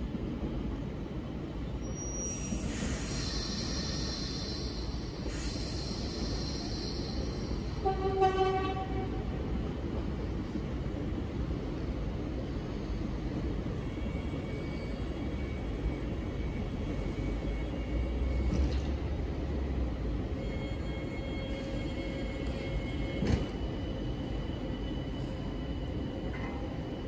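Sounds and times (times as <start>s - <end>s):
electric trains rumbling: 0.0s - 27.0s.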